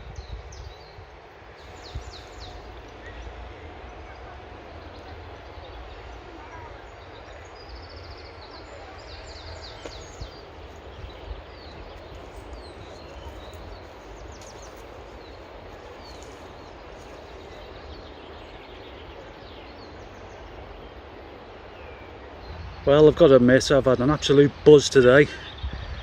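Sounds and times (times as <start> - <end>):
wind on microphone: 0.0 - 2.8, 25.5 - 26.0
small birds chirping: 0.1 - 26.0.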